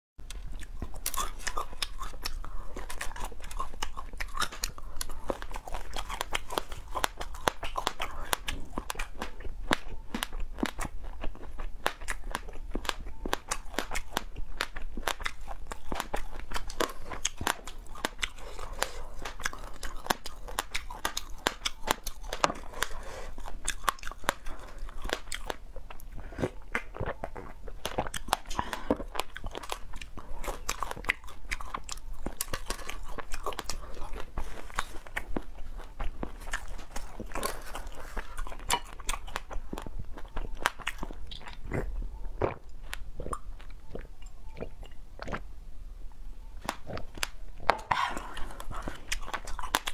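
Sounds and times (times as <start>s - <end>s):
wet mouth sounds: 0.2s - 45.5s, 46.6s - 49.9s
crunching and chewing: 0.2s - 45.6s, 46.6s - 49.9s.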